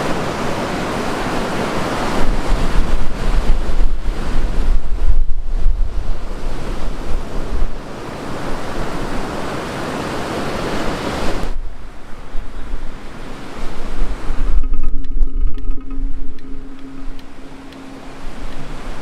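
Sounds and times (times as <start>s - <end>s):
wind buffeting microphone: 1.8s - 7.9s, 11.2s - 19.0s.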